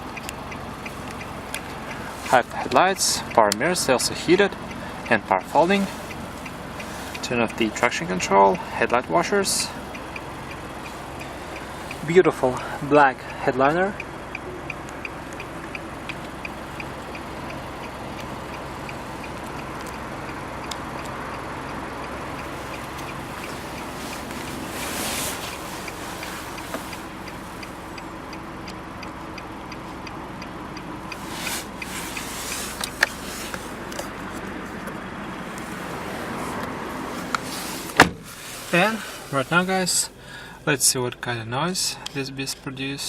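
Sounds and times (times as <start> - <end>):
light regular ticking: 0.0 - 40.8
car engine idling: 0.0 - 43.0.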